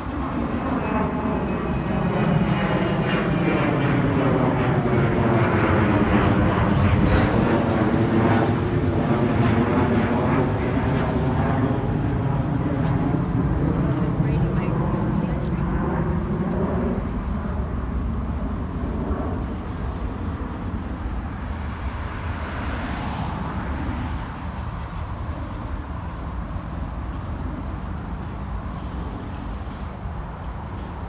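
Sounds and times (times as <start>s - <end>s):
vehicle rumbling: 7.2s - 31.0s.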